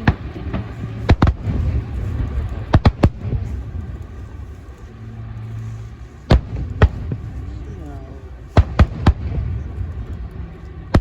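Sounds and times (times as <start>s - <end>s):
fireworks bursting with bangs: 0.0s - 4.5s, 6.3s - 7.6s, 8.4s - 11.0s.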